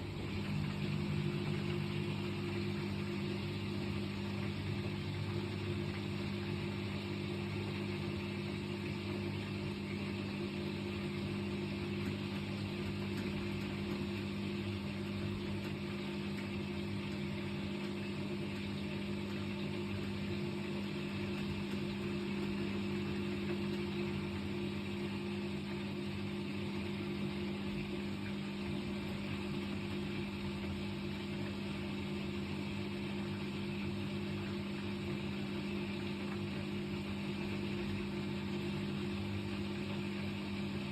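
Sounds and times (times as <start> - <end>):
washing machine running and shaking: 0.0 - 40.9.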